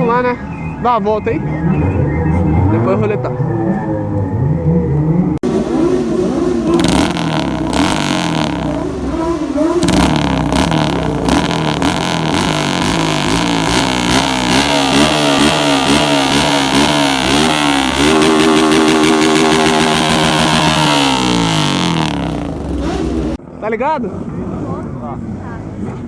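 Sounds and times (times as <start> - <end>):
motorcycle engine revving: 5.4 - 23.4.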